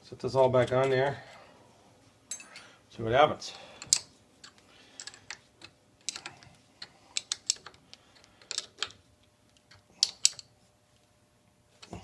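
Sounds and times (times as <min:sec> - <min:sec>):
small metal parts clinking: 0:03.8 - 0:09.0, 0:09.6 - 0:10.5.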